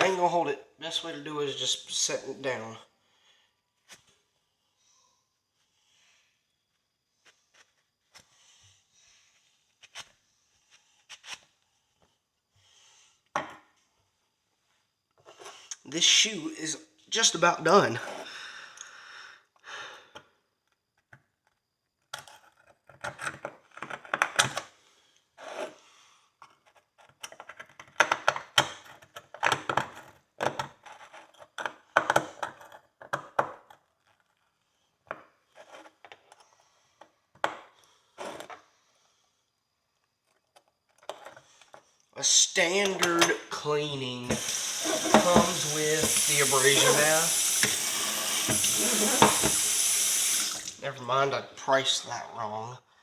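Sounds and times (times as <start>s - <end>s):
hand pick scraping horseshoe: 44.3s - 49.8s.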